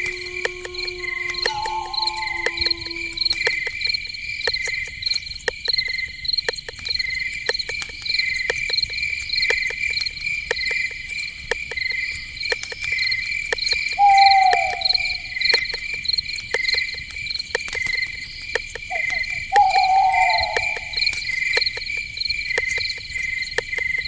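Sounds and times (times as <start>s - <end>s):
short falling call: 0.0s - 3.6s
crickets chirping: 0.0s - 24.0s
sharp clicks: 4.5s - 24.0s.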